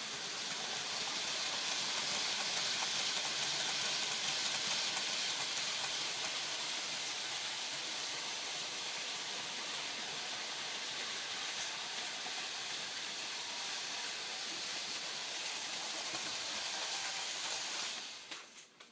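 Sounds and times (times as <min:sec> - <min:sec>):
model trains whirring on track: 0:00.0 - 0:18.7.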